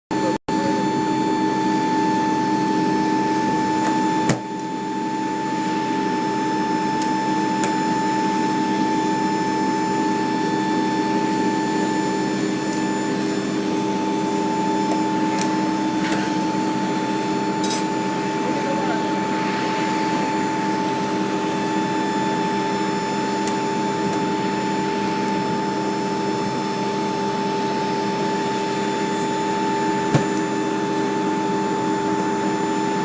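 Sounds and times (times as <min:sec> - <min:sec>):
turbine machinery whining hum: 0:00.1 - 0:33.0.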